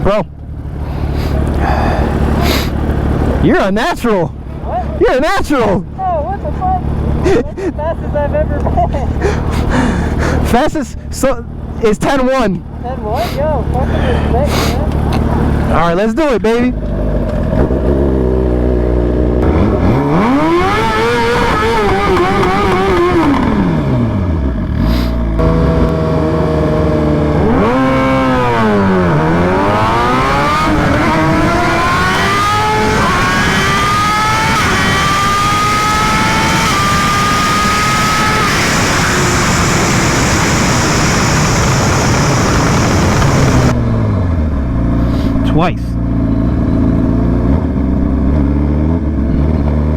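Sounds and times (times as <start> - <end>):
motorcycle engine revving: 0.4 - 3.5, 12.5 - 15.9, 16.5 - 49.9
rushing noise at speed: 35.0 - 43.8.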